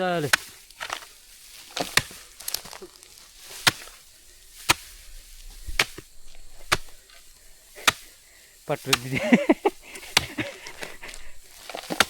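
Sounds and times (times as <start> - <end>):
sharp chopping strikes: 3.5 - 4.0, 4.6 - 4.9, 5.6 - 7.1, 7.7 - 8.2, 8.8 - 12.0.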